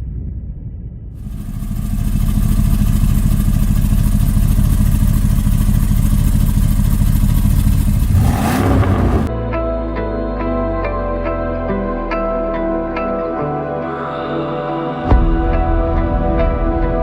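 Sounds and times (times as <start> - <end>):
car engine revving: 1.2 - 9.3.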